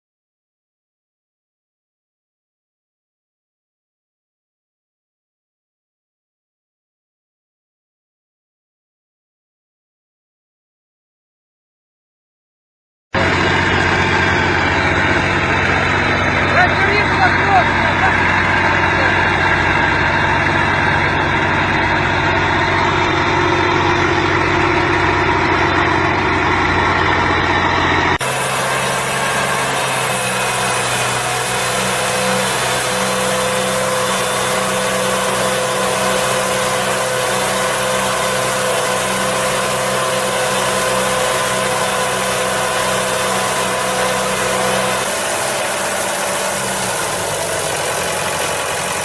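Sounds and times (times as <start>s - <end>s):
heavy machinery engine running: 13.2s - 49.0s.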